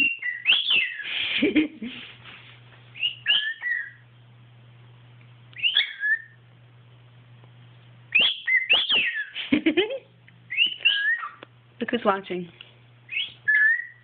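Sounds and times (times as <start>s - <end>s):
cockatiel whistling: 0.0s - 1.2s, 3.0s - 4.0s, 5.6s - 6.4s, 8.1s - 9.4s, 10.5s - 11.4s, 13.1s - 14.0s
harsh noisy bird note: 8.1s - 9.4s.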